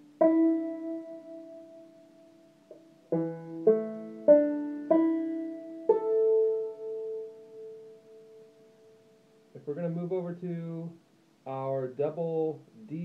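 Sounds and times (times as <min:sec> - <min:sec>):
banjo strings plucked: 0:00.0 - 0:01.4, 0:02.7 - 0:08.0.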